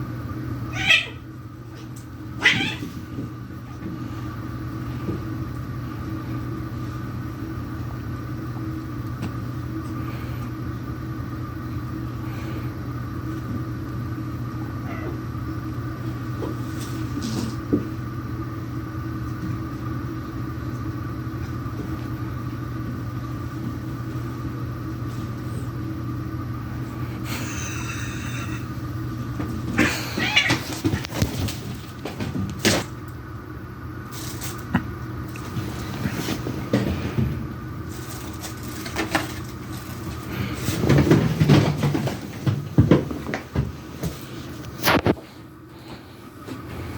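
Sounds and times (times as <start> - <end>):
low machine hum: 0.0 - 46.9
cat yowling: 0.7 - 1.3, 2.4 - 3.0, 29.8 - 30.8
cats scuffling: 16.0 - 18.0, 28.9 - 33.1, 34.0 - 46.9.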